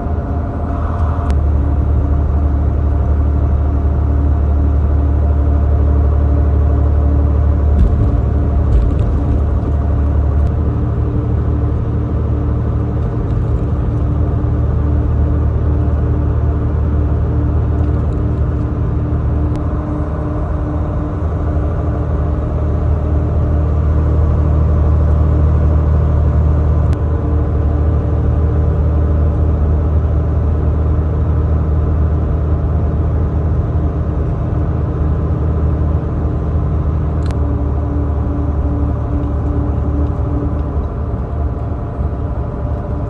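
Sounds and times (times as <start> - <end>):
truck engine drone: 0.0 - 43.0
tyre and road noise: 6.6 - 19.6.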